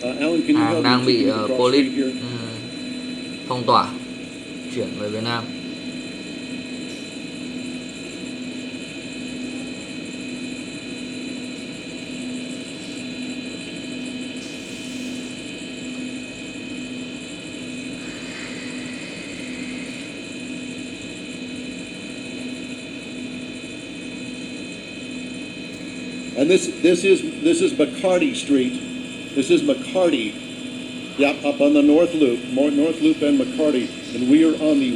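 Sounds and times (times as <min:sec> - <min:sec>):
high whines: 0:00.0 - 0:07.2, 0:17.6 - 0:22.4, 0:24.9 - 0:34.9
helicopter cabin drone: 0:00.0 - 0:34.9.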